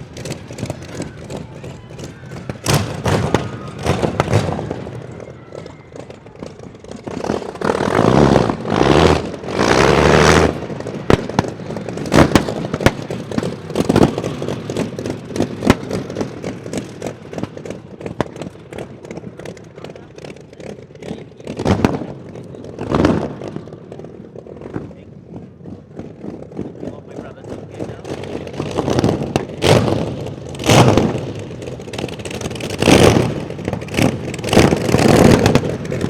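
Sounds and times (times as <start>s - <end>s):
sharp cracks and clatter: 0.0s - 36.0s
engine revving: 7.2s - 10.8s, 28.0s - 36.0s.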